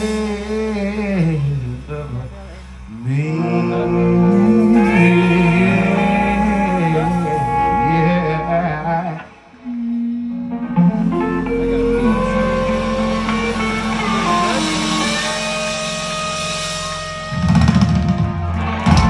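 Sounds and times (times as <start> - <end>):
guitar notes and chords: 3.4 - 19.0
live band playing: 3.4 - 19.0
drums with ringing cymbals: 11.9 - 19.0.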